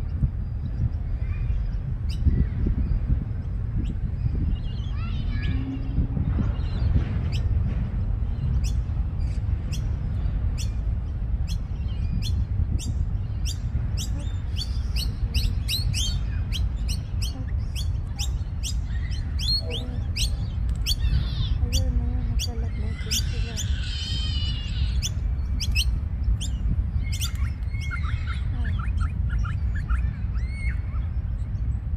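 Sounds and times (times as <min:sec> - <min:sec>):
pet birds chirping: 0:00.0 - 0:31.9
steady low rumble: 0:00.0 - 0:31.9.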